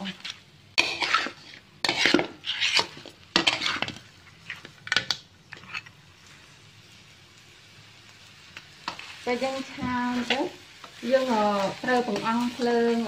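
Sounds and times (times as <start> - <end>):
wooden spatula scraping metal wok: 0.0 - 4.7.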